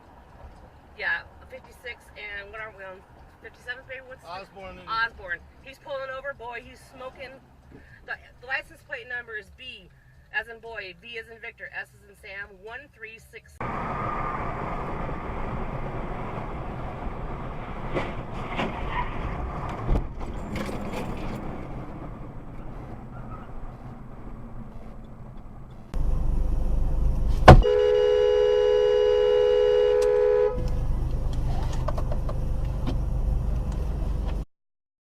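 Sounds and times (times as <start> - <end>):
road and wind rumble: 0.0 - 13.0, 13.6 - 34.5
sharp bang: 27.4 - 27.9
car horn: 27.4 - 30.7.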